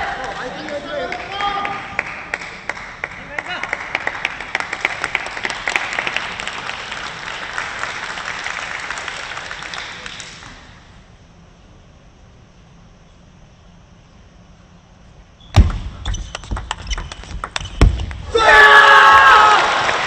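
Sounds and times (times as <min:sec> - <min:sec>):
arena crowd applauding: 0:00.0 - 0:10.9, 0:18.8 - 0:20.0.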